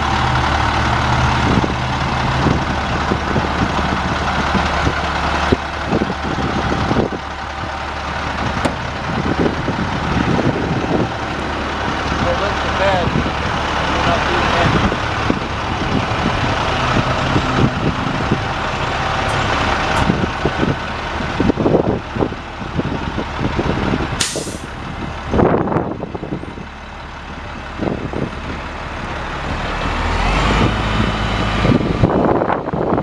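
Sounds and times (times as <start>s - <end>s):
diesel truck engine running: 0.0s - 33.0s
burst of air hiss: 24.2s - 24.7s.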